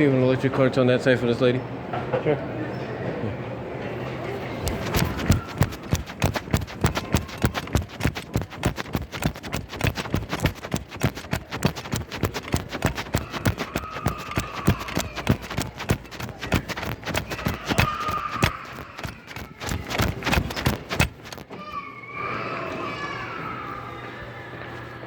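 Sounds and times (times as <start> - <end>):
quick footsteps: 4.6 - 21.5
body-worn recorder knocking: 4.7 - 21.5.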